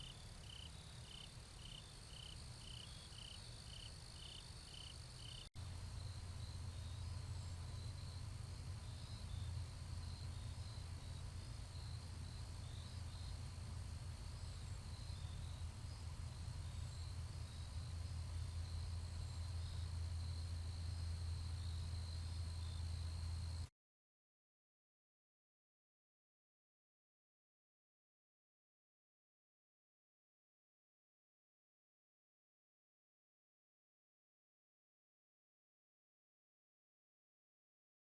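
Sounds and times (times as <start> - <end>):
insects trilling: 0.0 - 23.6
low steady hum: 0.0 - 23.7.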